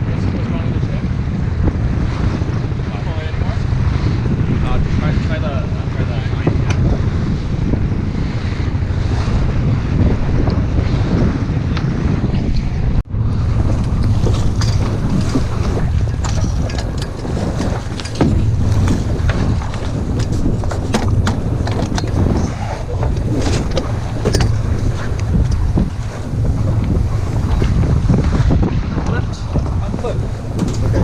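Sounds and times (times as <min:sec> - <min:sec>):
wind buffeting microphone: 0:00.0 - 0:31.0
rushing water: 0:13.0 - 0:31.0.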